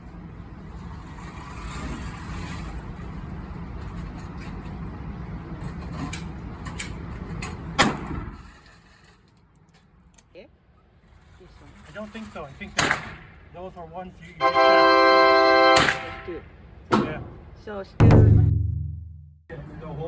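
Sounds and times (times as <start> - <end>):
loud knock: 18.0 - 19.4.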